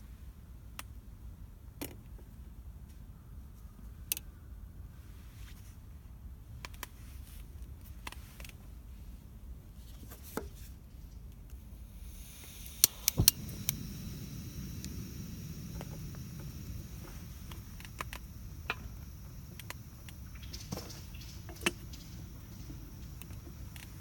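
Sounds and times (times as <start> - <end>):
fire hissing: 11.6 - 24.0
low steady rumble: 11.6 - 24.0
bonfire crackling and popping: 11.8 - 24.0.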